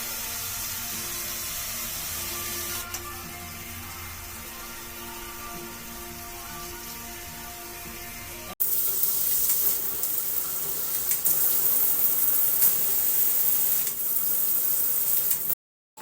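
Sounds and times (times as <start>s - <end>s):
water spraying from shower head: 0.1s - 2.9s, 8.6s - 15.6s.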